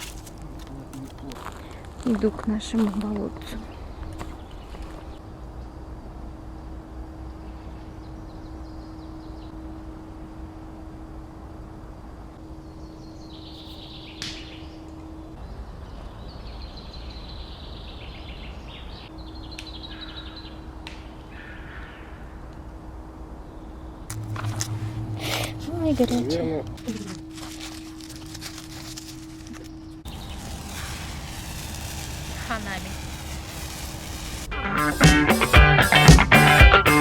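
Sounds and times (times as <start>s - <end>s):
small birds chirping and trilling: 1.2s - 5.2s, 29.6s - 30.8s
low steady hum: 22.8s - 30.2s.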